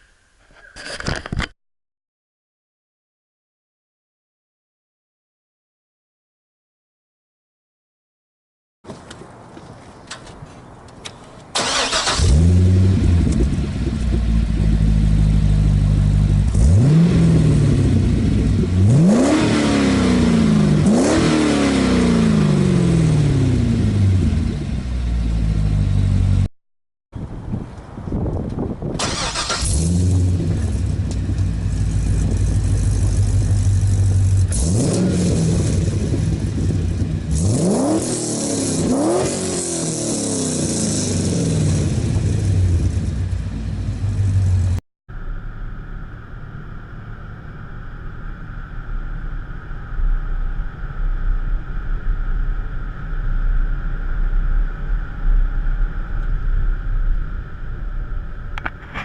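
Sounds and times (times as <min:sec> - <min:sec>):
engine and wind drone at speed: 0:08.9 - 0:26.5, 0:27.2 - 0:59.0
car engine idling and revving: 0:11.4 - 0:26.5, 0:27.8 - 0:59.0.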